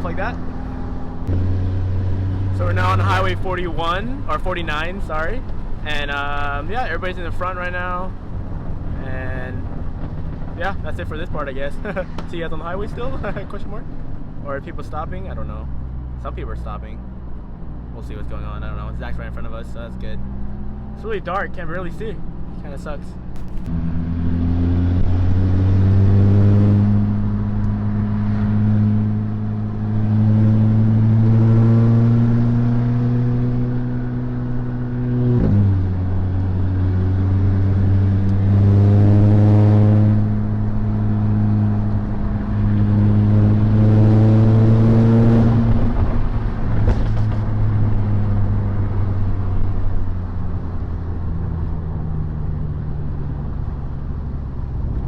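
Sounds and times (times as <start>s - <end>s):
car engine under load: 0.0s - 55.0s.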